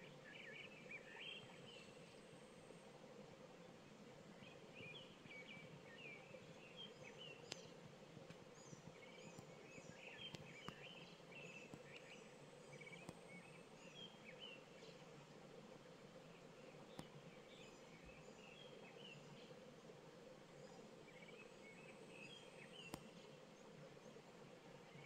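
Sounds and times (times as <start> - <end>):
low steady hum: 0.0 - 25.0
small birds chirping: 4.4 - 7.8, 8.4 - 15.0, 20.7 - 23.3.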